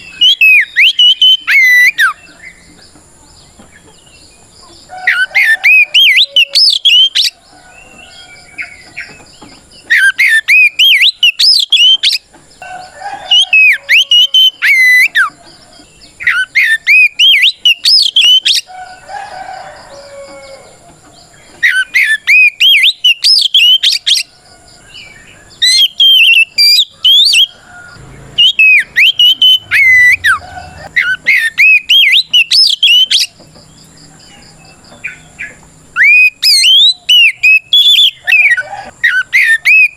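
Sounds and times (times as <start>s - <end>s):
bird singing whistled phrases: 0.0s - 2.3s, 5.1s - 7.4s, 9.8s - 12.2s, 13.3s - 15.3s, 16.2s - 18.7s, 21.6s - 24.3s, 25.6s - 27.6s, 28.4s - 33.3s, 36.0s - 39.9s.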